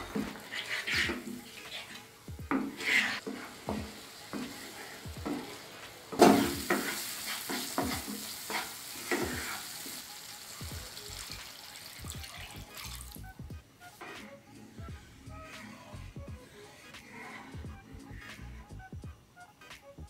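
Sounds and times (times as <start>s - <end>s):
wooden spatula scraping a pan: 0.0s - 10.0s
curry sizzling in a pan: 0.0s - 13.2s.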